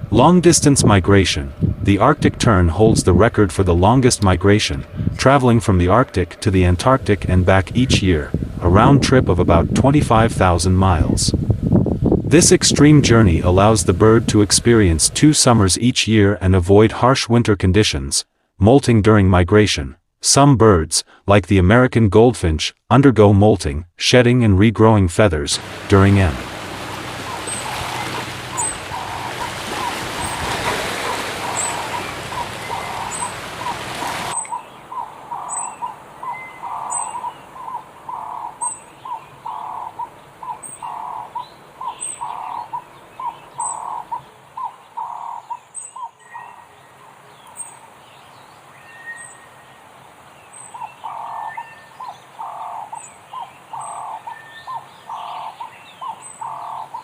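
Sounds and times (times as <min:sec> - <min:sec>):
background hiss: 0:25.6 - 0:38.1
high thin bird chirps: 0:26.8 - 0:34.7.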